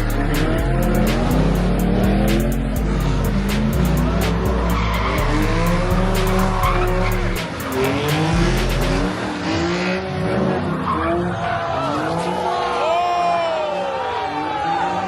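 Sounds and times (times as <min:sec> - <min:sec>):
music with deep bass beat: 0:00.0 - 0:09.2
car engine revving: 0:00.0 - 0:12.6.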